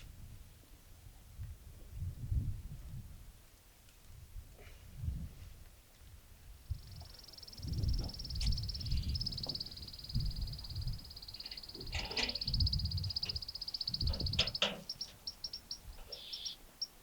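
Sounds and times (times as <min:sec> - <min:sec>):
animal trilling and chirping: 0:07.2 - 0:16.9
louder animal calls: 0:11.4 - 0:16.6.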